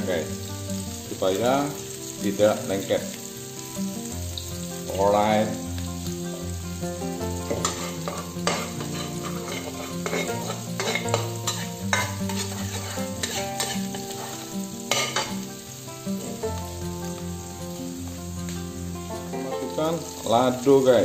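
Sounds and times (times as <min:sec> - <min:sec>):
spice paste sizzling in oil: 0:00.0 - 0:21.0
spatula scraping a wok: 0:07.2 - 0:15.5.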